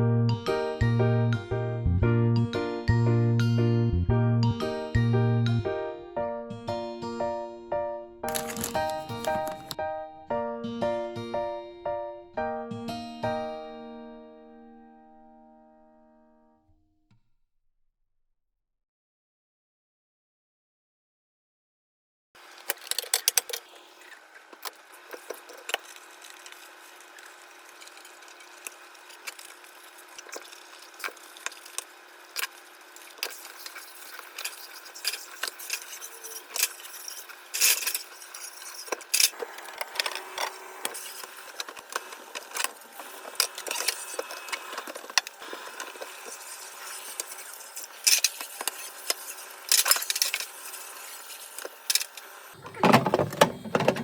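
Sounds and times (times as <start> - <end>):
household objects clattering: 8.3 - 9.8, 52.6 - 54.0.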